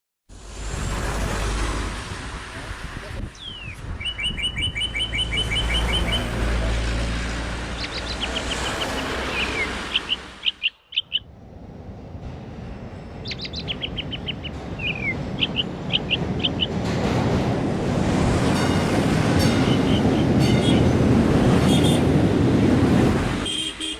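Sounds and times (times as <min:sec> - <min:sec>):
songbird chirps and whistles: 0:03.4 - 0:06.2, 0:07.8 - 0:11.2, 0:13.3 - 0:16.7.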